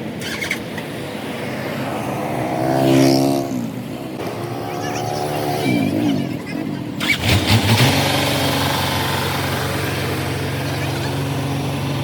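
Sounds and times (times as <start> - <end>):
truck engine starting and idling: 0.0 - 0.8, 4.7 - 12.0.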